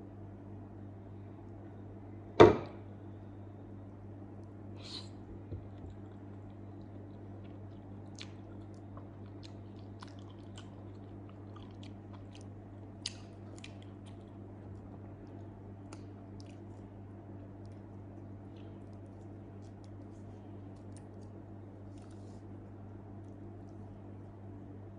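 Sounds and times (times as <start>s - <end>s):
chewing soft food: 5.2s - 24.9s.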